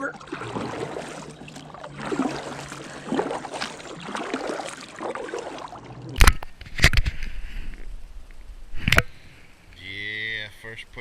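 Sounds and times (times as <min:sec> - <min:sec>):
water sloshing around kayak: 0:00.0 - 0:08.0.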